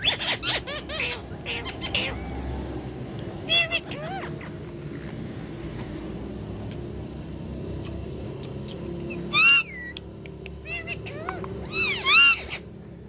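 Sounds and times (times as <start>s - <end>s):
parrot squawking: 0.0s - 2.5s, 3.4s - 4.6s, 9.1s - 10.0s, 10.6s - 12.7s.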